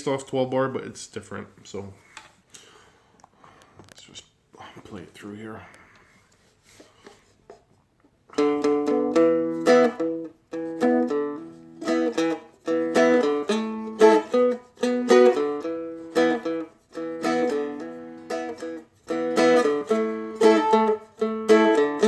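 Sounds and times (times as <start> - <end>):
strummed dulcimer blues rhythm: 8.3 - 22.0.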